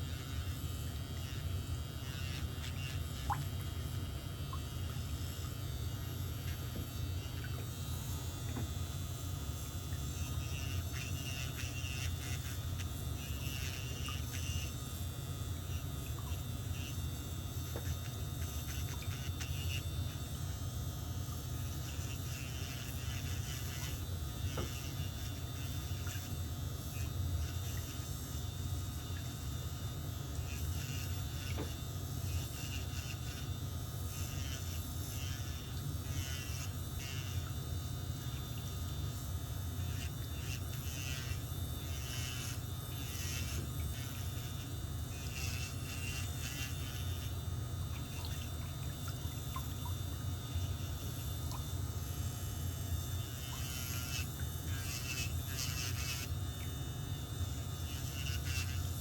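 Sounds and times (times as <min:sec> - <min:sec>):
electric nail drill buzzing: 0:00.0 - 0:59.0
drill scraping against nail: 0:21.6 - 0:28.0, 0:39.8 - 0:47.4, 0:53.2 - 0:56.4, 0:57.8 - 0:59.0.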